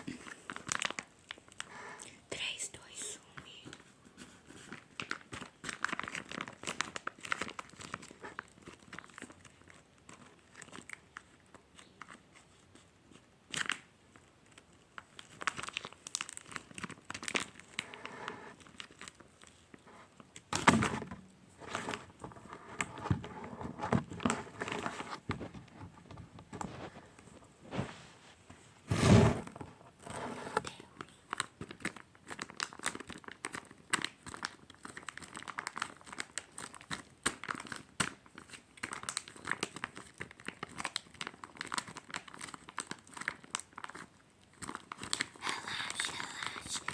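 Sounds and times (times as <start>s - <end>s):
squishy toy crinkling and crackling: 0.0s - 2.0s, 3.4s - 27.7s, 29.8s - 46.9s
loud thuds: 28.9s - 29.6s.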